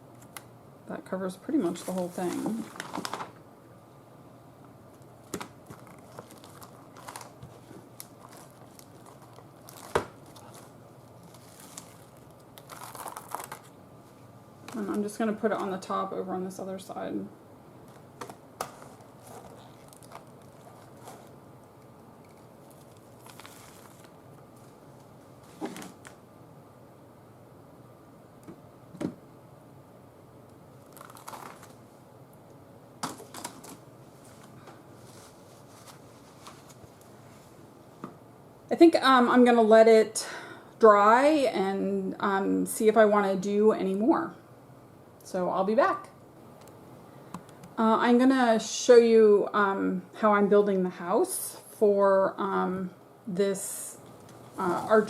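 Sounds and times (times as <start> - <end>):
paper rustling and crinkling: 1.7 - 3.4, 5.2 - 13.7, 17.8 - 21.4, 22.2 - 26.2, 30.8 - 31.8, 33.0 - 37.5.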